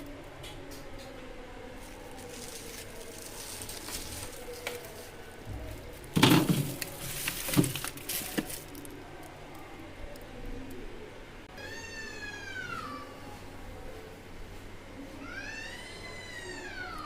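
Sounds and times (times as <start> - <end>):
plastic crackling and clatter: 1.8 - 9.4
frozen packs knocking on shelf: 6.1 - 8.6.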